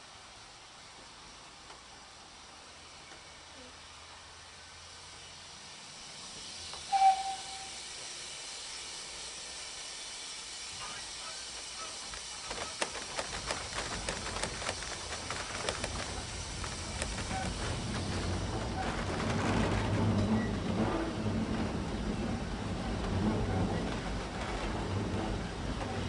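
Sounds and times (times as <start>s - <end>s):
low train rumble: 0.0s - 26.0s
steady hiss: 0.0s - 26.0s
train wheels clattering over track: 5.8s - 26.0s
high squeal: 6.7s - 8.0s.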